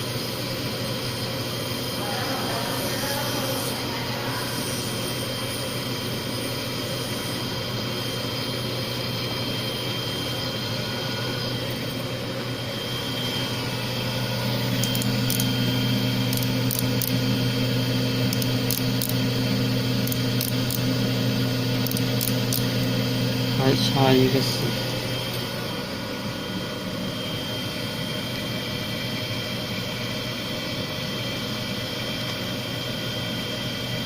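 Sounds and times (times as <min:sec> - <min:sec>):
higher machine hum: 0:00.0 - 0:34.0
grinder humming: 0:02.7 - 0:28.4.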